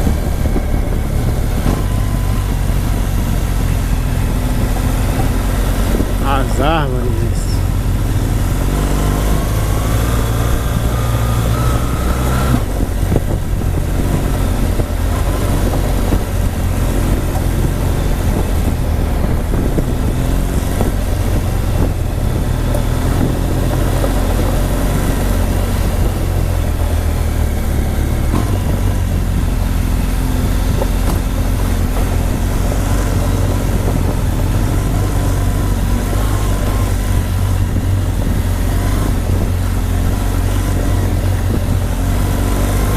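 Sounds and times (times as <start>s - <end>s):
motorcycle engine: 0.0s - 42.9s
wind rumble on microphone: 0.0s - 42.9s.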